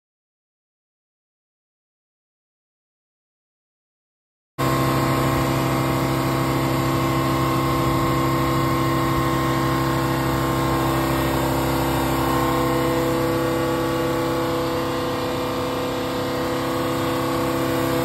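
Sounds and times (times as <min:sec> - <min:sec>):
power sander running: 0:04.6 - 0:18.0.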